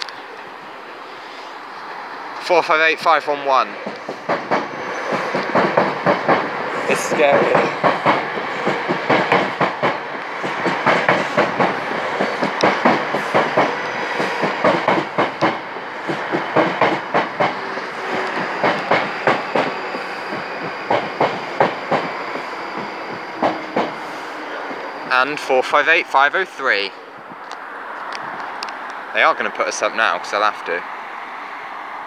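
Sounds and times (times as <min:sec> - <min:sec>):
train rumble: 0:01.5 - 0:31.2
train wheels clicking over rail joints: 0:03.7 - 0:24.1.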